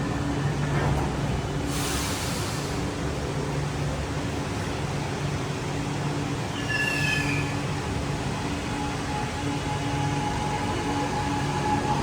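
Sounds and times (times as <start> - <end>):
train rumble with low hum: 0.0 - 12.0
high-pitched brake squeal: 6.5 - 7.7.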